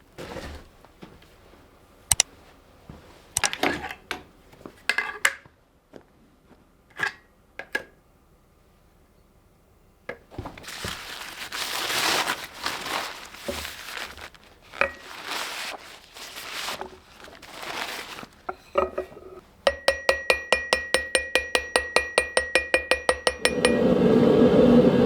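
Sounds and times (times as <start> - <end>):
hammer blows on anvil: 19.7 - 24.0
ringing metal strike: 19.7 - 24.0.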